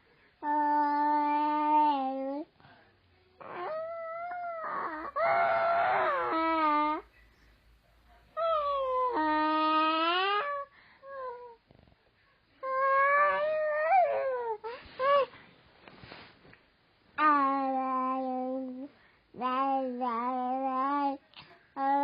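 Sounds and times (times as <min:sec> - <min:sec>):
long wailing vocal calls: 0:03.4 - 0:07.0.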